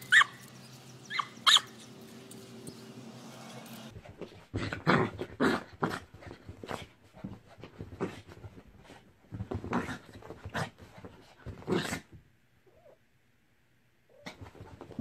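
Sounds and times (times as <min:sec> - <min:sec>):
dog growling and yapping: 0:04.6 - 0:06.1.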